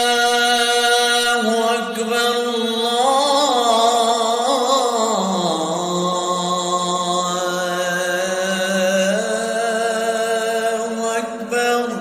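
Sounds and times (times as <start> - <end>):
man chanting call to prayer: 0.0 - 12.0.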